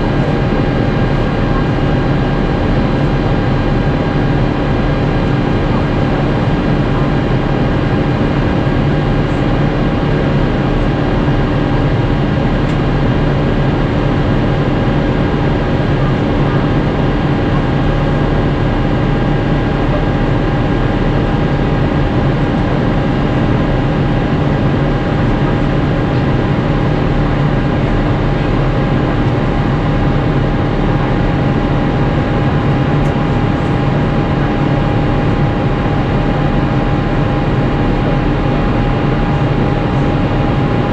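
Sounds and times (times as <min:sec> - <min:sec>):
jet engine drone: 0:00.0 - 0:40.9
steady hum tones: 0:00.0 - 0:40.9.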